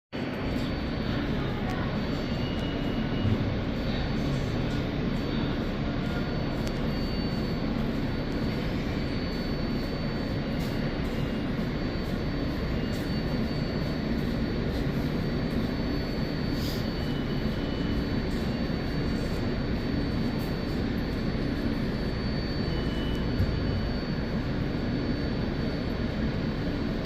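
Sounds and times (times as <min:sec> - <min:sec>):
faint high whine: 0:00.2 - 0:27.0
subway train wheels rumbling: 0:00.2 - 0:27.0.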